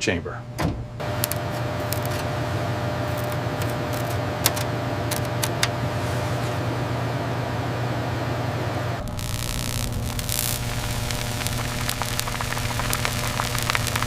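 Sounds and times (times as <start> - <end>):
mechanical hum with hiss: 0.0 - 14.0
sharp clicks: 1.2 - 2.2, 3.1 - 5.6, 9.1 - 14.0.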